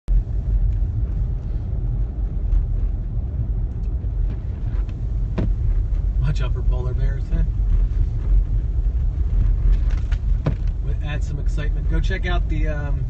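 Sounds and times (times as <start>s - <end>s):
car engine and road noise: 0.0s - 13.0s
faint light ticks: 0.6s - 1.5s, 3.7s - 5.0s.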